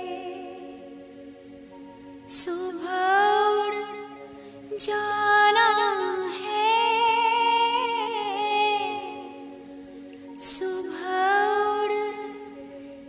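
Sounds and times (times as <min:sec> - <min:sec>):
woman singing folk song: 0:02.3 - 0:09.5, 0:10.4 - 0:12.6.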